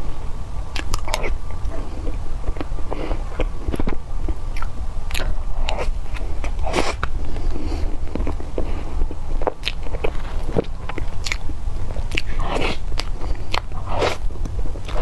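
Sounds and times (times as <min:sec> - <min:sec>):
lip smacks: 0:00.7 - 0:01.4, 0:10.9 - 0:15.0
wet chewing: 0:00.7 - 0:15.0.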